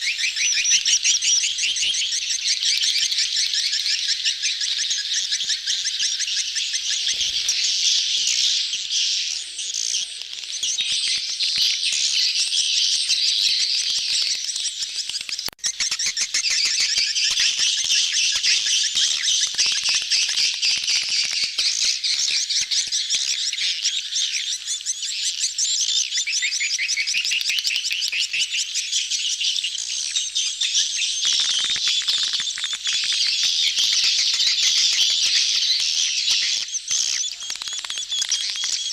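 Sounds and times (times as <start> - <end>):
swiftlets twittering: 30.2 - 38.9.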